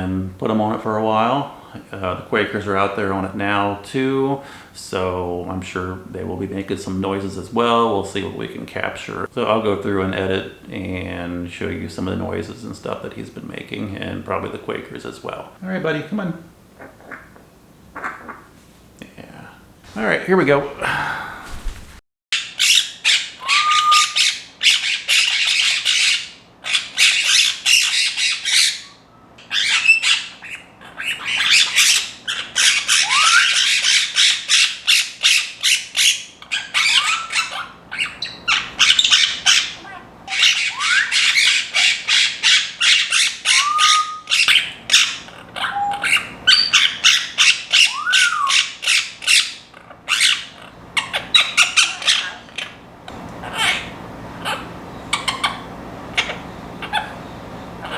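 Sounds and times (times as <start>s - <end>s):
parrots squawking: 16.7s - 18.6s, 20.5s - 57.9s
parrot rising whistles: 22.7s - 24.4s, 32.8s - 34.0s, 36.6s - 48.7s.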